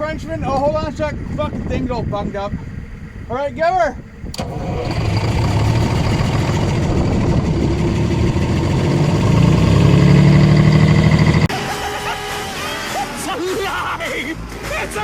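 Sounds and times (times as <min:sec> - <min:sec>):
diesel engine cold start: 0:04.2 - 0:11.5.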